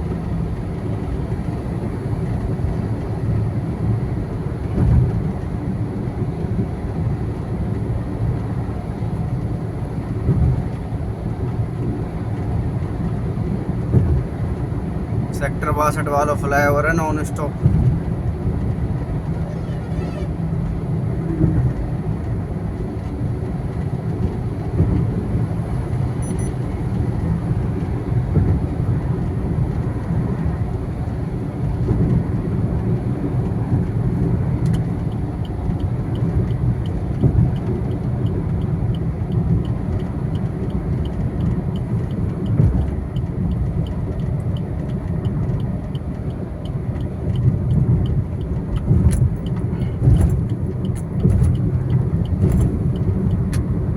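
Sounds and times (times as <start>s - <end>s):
vehicle road and engine noise: 0.0s - 53.9s
faint regular ticking: 26.2s - 27.0s.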